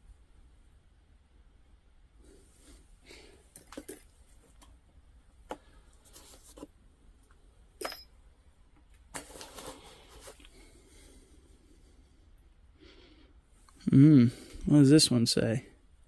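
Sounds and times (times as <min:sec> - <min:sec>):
metal jewelry clinking: 0:07.8 - 0:08.2.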